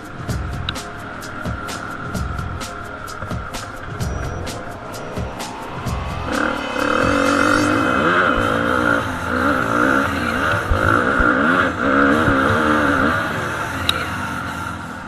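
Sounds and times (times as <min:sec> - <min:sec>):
motocross bike engine revving: 0:08.0 - 0:14.8.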